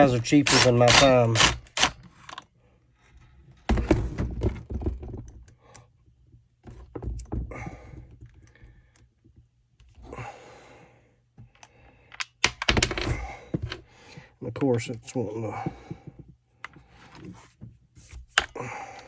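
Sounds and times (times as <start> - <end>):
plastic parts clicking and knocking: 0.0 - 2.5, 3.6 - 9.5, 11.4 - 15.0, 18.0 - 19.0.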